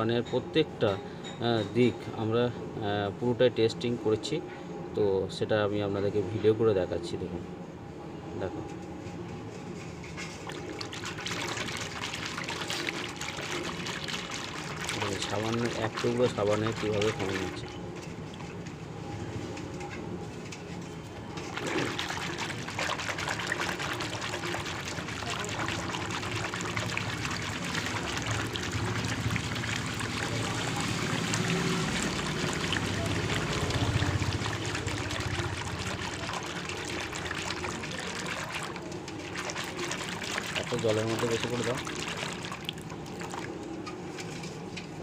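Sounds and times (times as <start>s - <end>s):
water pouring into container: 10.4s - 18.5s, 21.4s - 43.6s.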